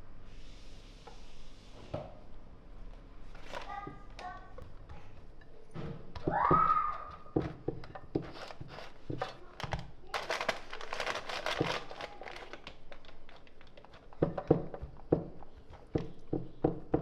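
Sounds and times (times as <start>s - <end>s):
crinkling and rustling: 3.3s - 16.5s
light taps and knocks: 3.8s - 9.9s.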